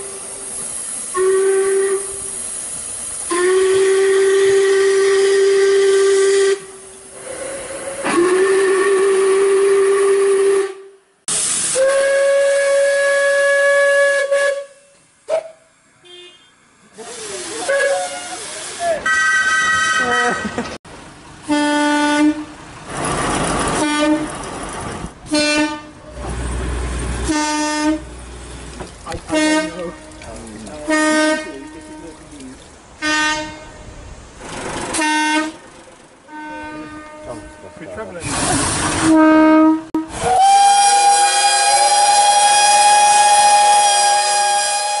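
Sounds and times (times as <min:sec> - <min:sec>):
steam hissing: 0:00.0 - 0:10.6, 0:11.3 - 0:14.4, 0:16.9 - 0:19.1, 0:38.0 - 0:39.2, 0:40.1 - 0:45.0
steam locomotive whistle toots: 0:01.1 - 0:02.4, 0:03.2 - 0:16.5, 0:17.6 - 0:20.5, 0:27.2 - 0:28.1, 0:29.3 - 0:30.1, 0:34.9 - 0:35.6, 0:36.3 - 0:45.0.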